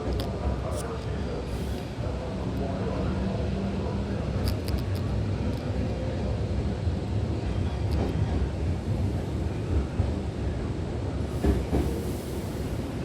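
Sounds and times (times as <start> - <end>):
train wheels rumbling: 4.2 - 13.0.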